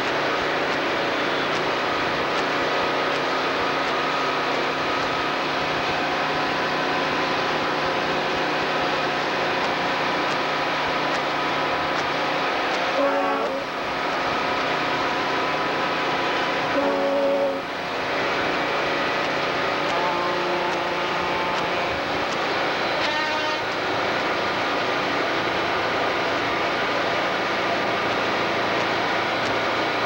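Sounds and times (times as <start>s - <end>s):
truck horn blast: 13.0s - 13.7s, 16.7s - 17.7s, 19.9s - 21.9s, 23.0s - 23.7s.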